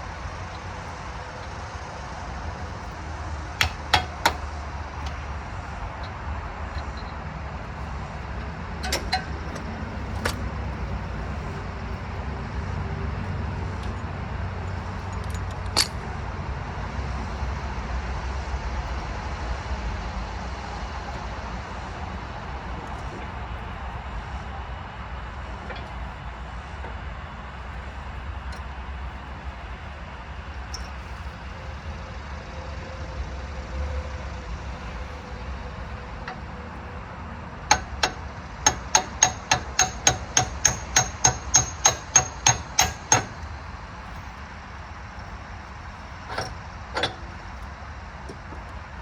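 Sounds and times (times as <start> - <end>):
metallic tool knocks and clinks: 8.8 - 10.5, 15.0 - 16.0, 46.3 - 47.3.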